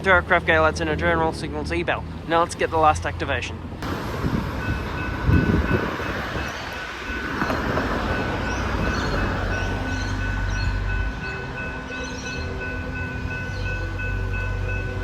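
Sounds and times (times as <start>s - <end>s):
crossing warning bell ringing: 3.8s - 15.0s
electric train approaching: 3.8s - 15.0s.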